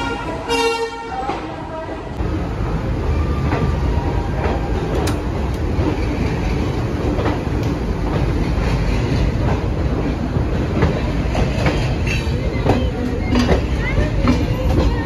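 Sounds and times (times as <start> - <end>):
train wheels rumbling: 0.0 - 15.0
wheels clicking over rails: 4.4 - 15.0.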